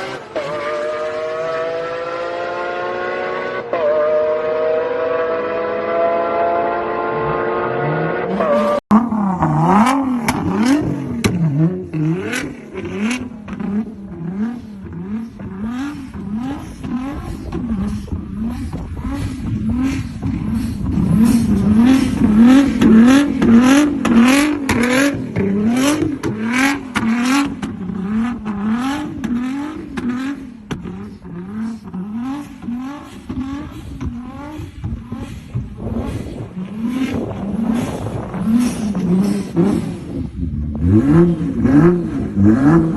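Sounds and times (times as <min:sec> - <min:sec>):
car engine revving: 0:00.0 - 0:42.9
exhaust crackles: 0:08.9 - 0:42.9.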